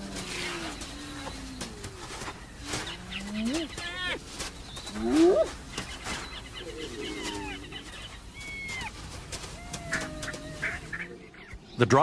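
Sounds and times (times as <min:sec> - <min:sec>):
long held animal whine: 0:00.0 - 0:03.8
whistled animal calls: 0:04.8 - 0:05.6.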